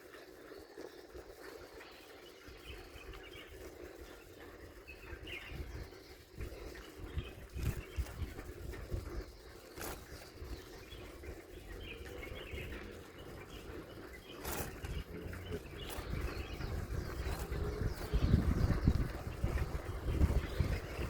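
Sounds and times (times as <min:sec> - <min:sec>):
small birds chirping: 0:00.0 - 0:21.0
low rumble on microphone: 0:02.8 - 0:21.0.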